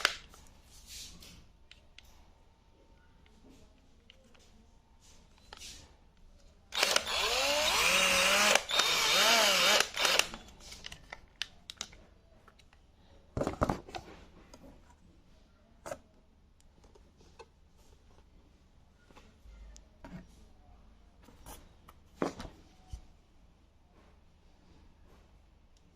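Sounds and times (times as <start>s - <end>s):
cordless drill running: 6.7s - 10.4s.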